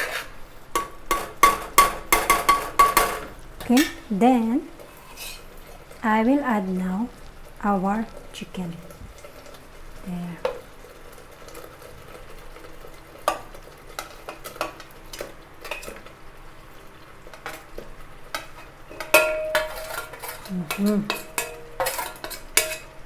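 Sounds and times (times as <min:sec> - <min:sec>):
metal spoon scraping pan: 0:00.0 - 0:04.2, 0:04.8 - 0:06.0, 0:13.2 - 0:16.1, 0:17.2 - 0:23.0
faint frying sizzle: 0:00.0 - 0:23.0.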